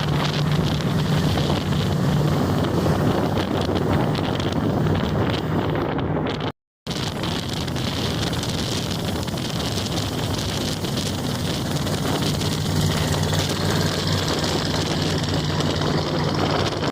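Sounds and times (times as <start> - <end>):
wind noise on microphone: 0.0 - 16.9
truck engine idling: 6.9 - 16.9.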